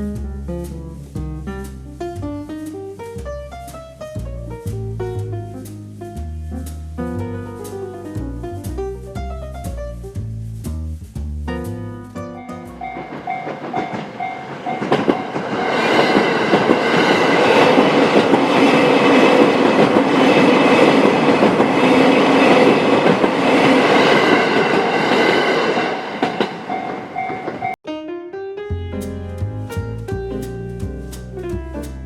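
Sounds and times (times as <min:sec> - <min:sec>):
train wheels clattering over joints: 0:12.7 - 0:25.4
two-tone crossing warning bell: 0:12.8 - 0:16.0, 0:26.5 - 0:27.8.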